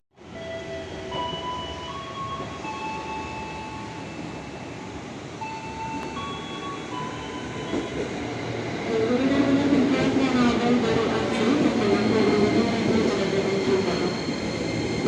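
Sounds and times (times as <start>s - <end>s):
train wheels rumbling on rail: 5.8s - 15.0s.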